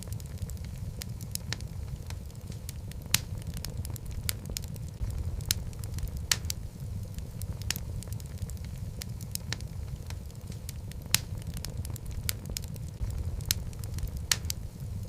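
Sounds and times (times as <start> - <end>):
fireplace logs crackling: 0.0 - 15.0
low rumble of flames: 0.0 - 15.0.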